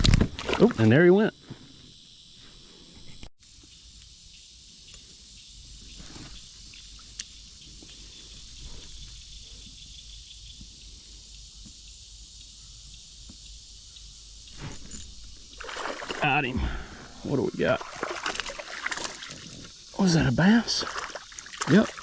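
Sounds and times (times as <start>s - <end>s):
insect chorus drone: 0.0s - 22.0s.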